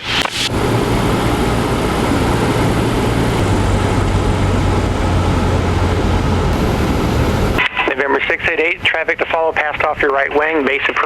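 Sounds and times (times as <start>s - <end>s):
aircraft engine droning in cabin: 0.4s - 7.6s.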